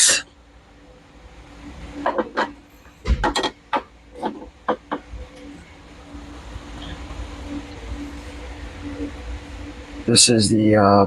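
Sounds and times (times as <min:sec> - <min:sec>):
sharp knocks and clacks: 0:02.0 - 0:05.1.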